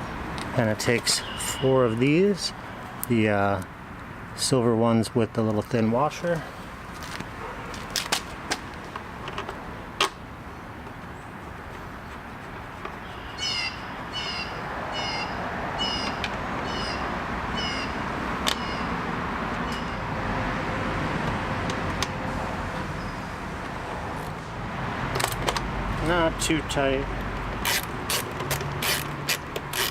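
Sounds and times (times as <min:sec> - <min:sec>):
steady background noise: 0:00.0 - 0:29.9
bird calling repeated notes: 0:13.0 - 0:19.0, 0:19.6 - 0:20.0.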